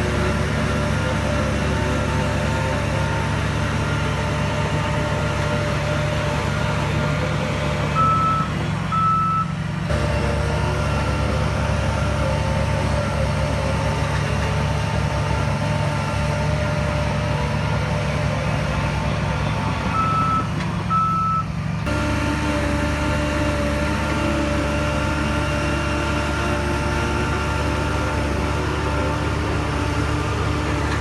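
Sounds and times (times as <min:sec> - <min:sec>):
heavy diesel machinery running: 0:00.0 - 0:31.0
reversing alarm beeping: 0:08.0 - 0:09.5, 0:19.9 - 0:21.5.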